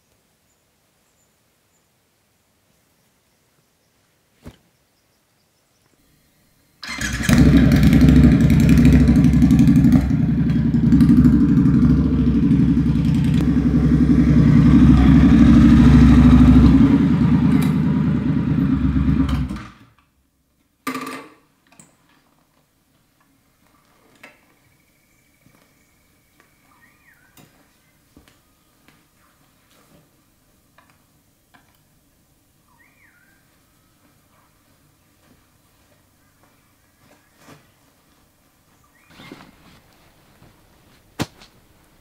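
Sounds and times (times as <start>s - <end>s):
motorcycle engine running: 6.8s - 19.8s.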